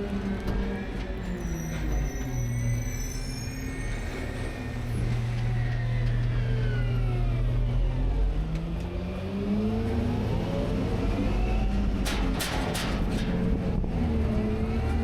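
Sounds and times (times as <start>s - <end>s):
sharp metal clanks: 12.0s - 13.8s.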